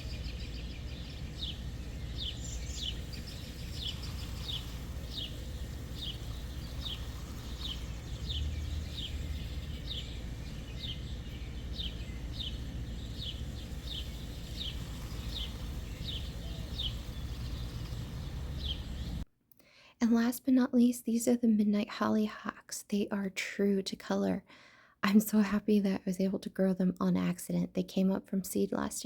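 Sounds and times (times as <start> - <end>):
bird high falling chirp: 0.0 - 19.2
low background rumble: 0.0 - 19.2.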